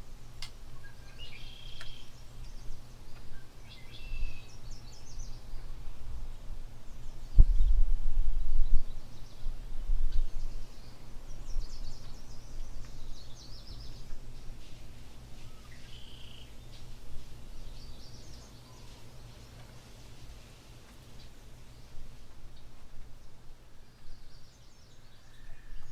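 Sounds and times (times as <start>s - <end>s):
small birds chirping: 0.0s - 25.9s
steady low rumble: 2.0s - 15.8s.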